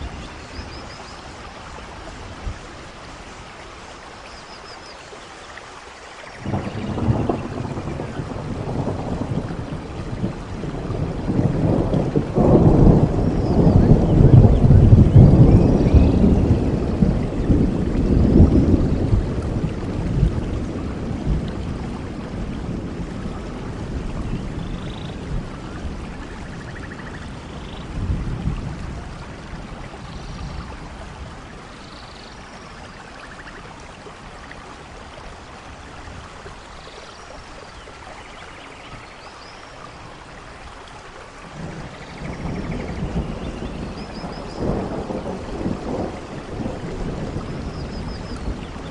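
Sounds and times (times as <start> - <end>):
steady rainfall: 0.0 - 48.9
thunder rumbling: 6.4 - 34.2, 41.4 - 48.9.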